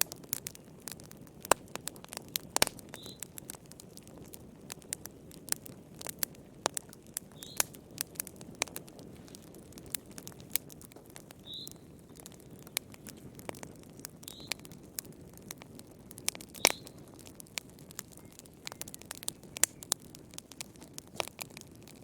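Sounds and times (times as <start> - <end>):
fire crackling: 0.0 - 22.0
faint high chirp: 3.0 - 3.2, 11.4 - 11.8, 14.3 - 14.6.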